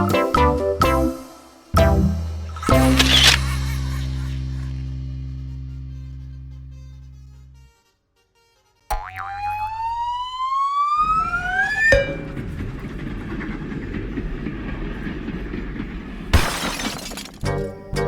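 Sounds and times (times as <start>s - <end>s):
short crash: 1.8s - 5.5s
low rumble: 1.8s - 7.6s.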